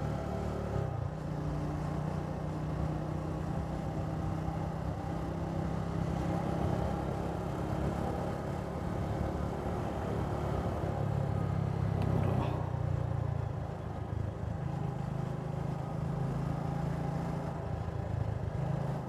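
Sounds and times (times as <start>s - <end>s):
single-cylinder engine running: 6.6s - 19.0s.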